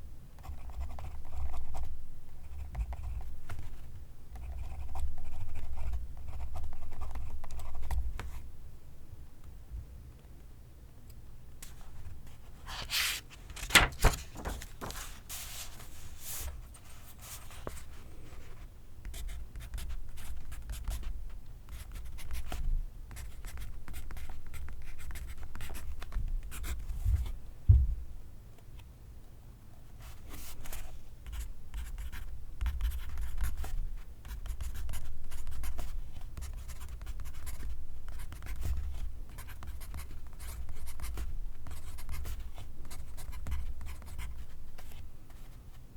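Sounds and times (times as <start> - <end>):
low knock: 27.7 - 28.1.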